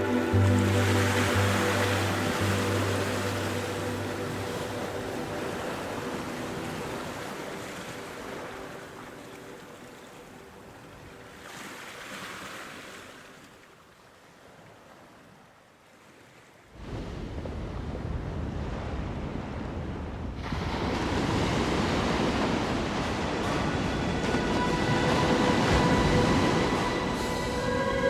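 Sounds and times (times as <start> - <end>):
music: 0.0 - 11.5, 22.0 - 28.0
ocean surf washing ashore: 0.0 - 13.5, 16.8 - 28.0.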